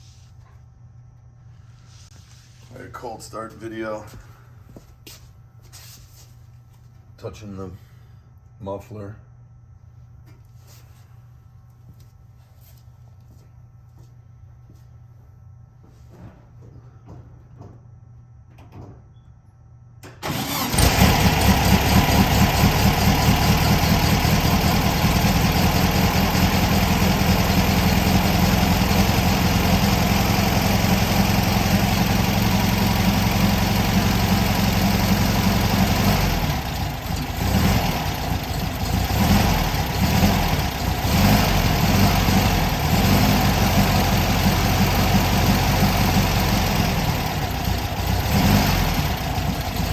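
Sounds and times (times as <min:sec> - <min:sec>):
car engine starting and idling: 0:20.0 - 0:49.9.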